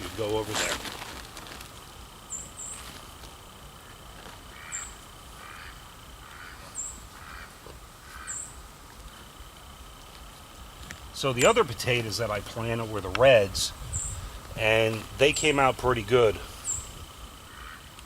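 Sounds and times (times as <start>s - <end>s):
birds harsh calls: 3.8s - 8.6s, 16.6s - 18.0s.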